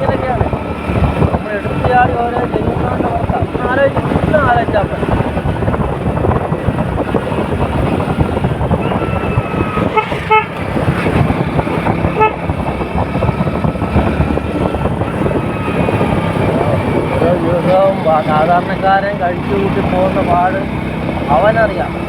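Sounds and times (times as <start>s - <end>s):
traffic engine and road noise: 0.0s - 22.0s
short horn beeps: 9.8s - 10.5s.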